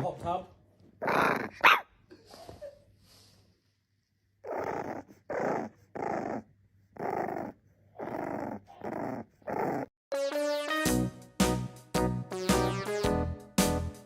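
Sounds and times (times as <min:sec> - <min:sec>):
dog growling: 0:01.0 - 0:01.7, 0:04.4 - 0:09.9.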